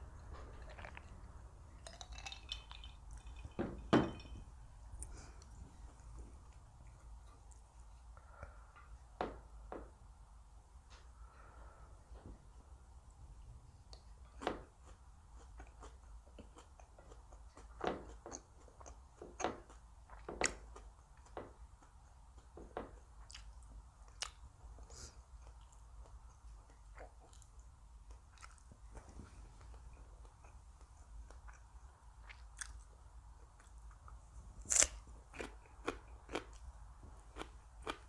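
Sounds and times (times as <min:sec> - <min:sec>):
person chewing crunchy food: 0:00.0 - 0:04.3, 0:14.3 - 0:38.0.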